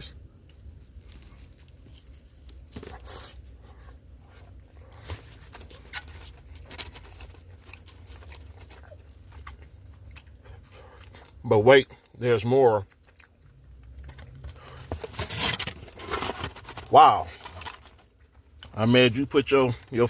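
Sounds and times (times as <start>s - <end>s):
soft crunching: 0.0s - 11.4s
low steady hum: 0.0s - 20.0s
person chewing food: 0.4s - 15.0s.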